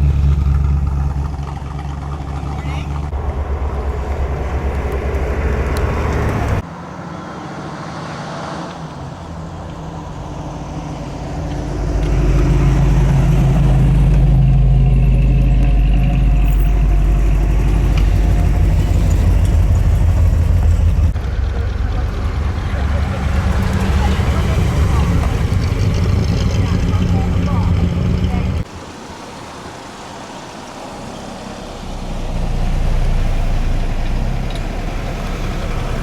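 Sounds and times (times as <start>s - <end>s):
car engines running: 0.0s - 36.0s.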